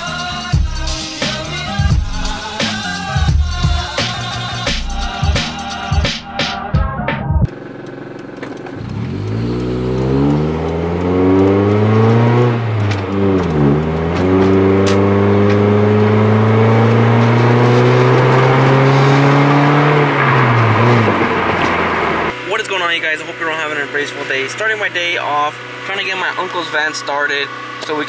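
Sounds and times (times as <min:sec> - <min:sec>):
car engine accelerating: 0:07.4 - 0:28.0.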